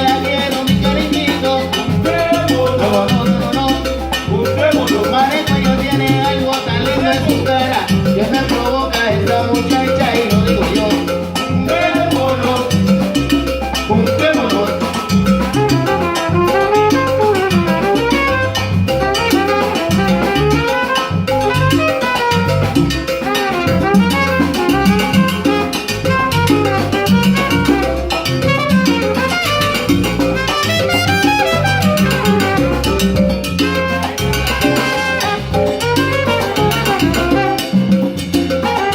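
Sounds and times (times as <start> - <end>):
rhythmic bass line: 0.0 - 38.9
brass: 14.0 - 38.9
drums: 21.0 - 38.9.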